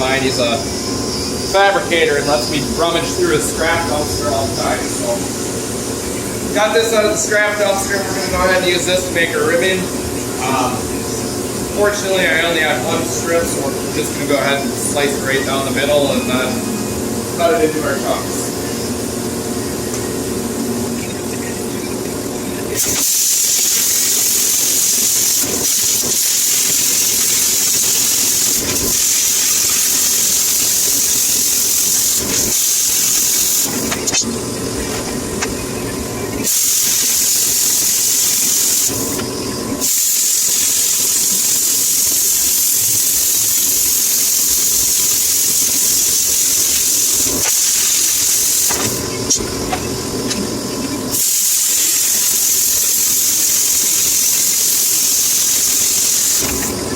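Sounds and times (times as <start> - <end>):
steel being cut hissing: 22.7 - 34.3, 36.4 - 39.2, 39.8 - 49.4, 51.1 - 56.8.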